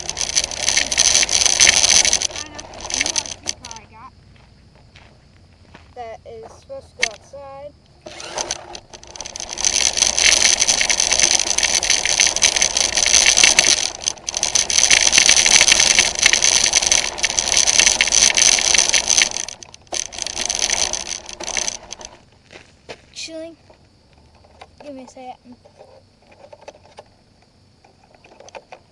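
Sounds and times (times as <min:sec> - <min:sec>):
electric motor whine: 0:00.0 - 0:04.0, 0:07.9 - 0:22.2
chassis rattling: 0:00.0 - 0:04.2, 0:06.7 - 0:22.5.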